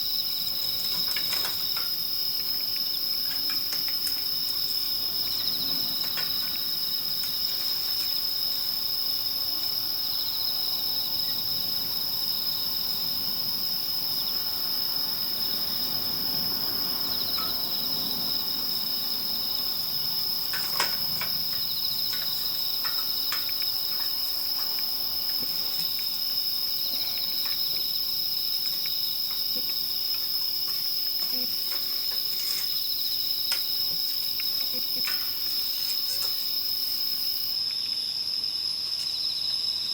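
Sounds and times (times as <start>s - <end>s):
crickets trilling: 0.0s - 39.9s
campfire crackles: 18.5s - 37.6s.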